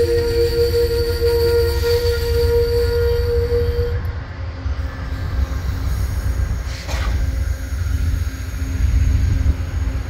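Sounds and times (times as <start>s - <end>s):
passenger train rumbling past: 0.0s - 10.0s.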